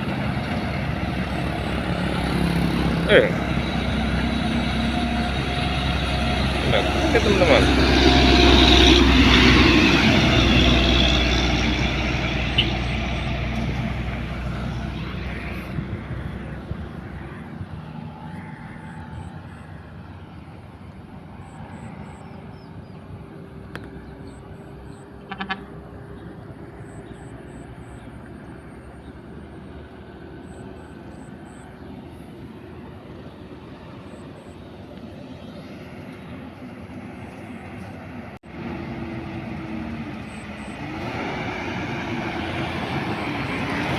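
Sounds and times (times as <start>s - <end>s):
distant traffic hum: 0.0s - 43.9s
truck diesel engine: 0.0s - 43.9s.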